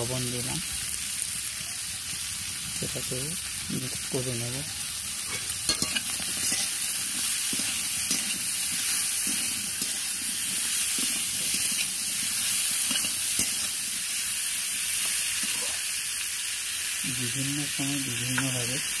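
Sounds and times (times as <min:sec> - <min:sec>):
vegetables sizzling in oil: 0:00.0 - 0:19.0
metal spatula scraping: 0:05.2 - 0:13.9, 0:15.0 - 0:15.8.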